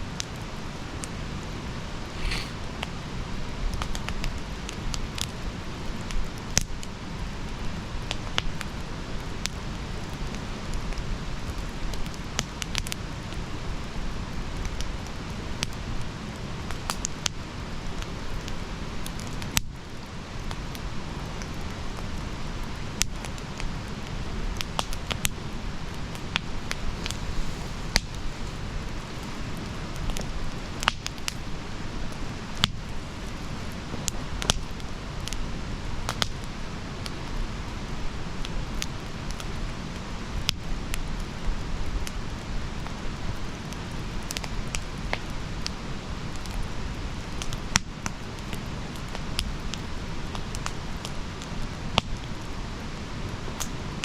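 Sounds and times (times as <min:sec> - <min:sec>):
burning wood crackling: 0:00.1 - 0:54.0
low rush of flame: 0:01.8 - 0:03.3, 0:21.2 - 0:54.0.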